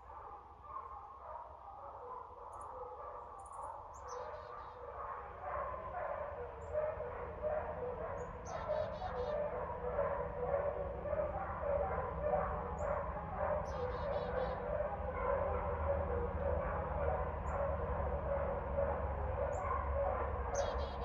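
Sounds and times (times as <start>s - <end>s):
dogs barking: 0.0s - 21.0s
bird chirps: 13.6s - 14.6s, 20.6s - 21.0s.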